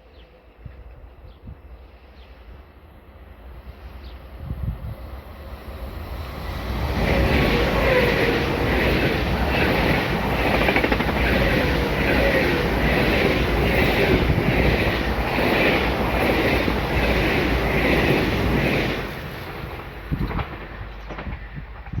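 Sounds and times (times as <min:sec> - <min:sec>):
train wheels pulsing: 0:05.4 - 0:21.9.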